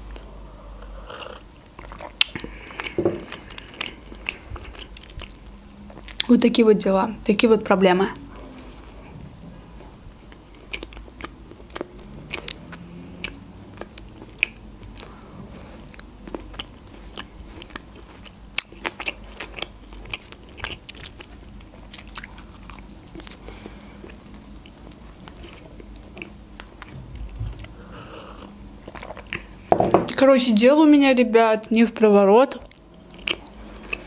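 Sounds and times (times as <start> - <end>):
chewing soft bun: 0.0 - 6.4, 8.1 - 29.7, 32.5 - 34.0.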